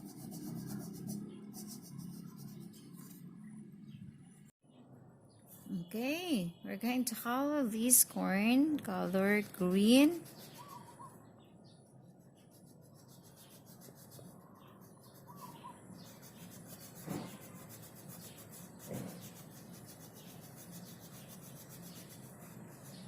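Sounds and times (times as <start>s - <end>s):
colouring strokes on paper: 0.0s - 3.4s, 9.1s - 11.0s, 12.0s - 23.0s.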